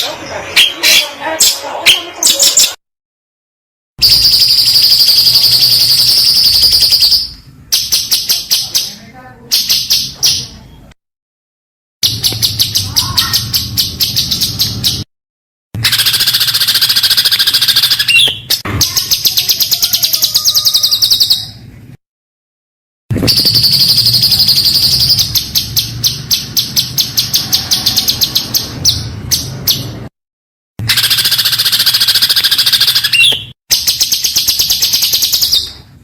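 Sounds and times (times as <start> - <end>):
songbird singing rapid high notes: 15.8 - 21.6, 30.9 - 35.7.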